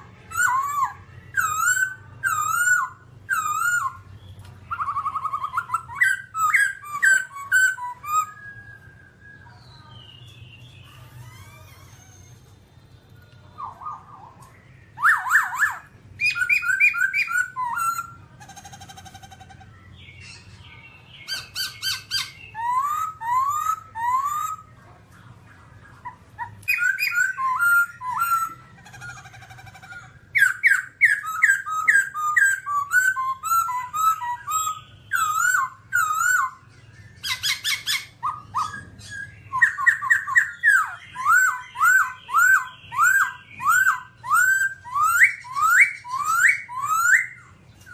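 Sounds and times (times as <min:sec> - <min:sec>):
bird singing whistled song: 0:00.1 - 0:11.8, 0:12.9 - 0:24.8, 0:25.9 - 0:47.9.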